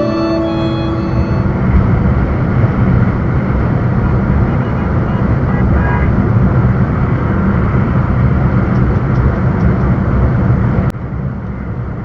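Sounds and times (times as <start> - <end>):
truck engine and road noise: 0.0 - 12.0.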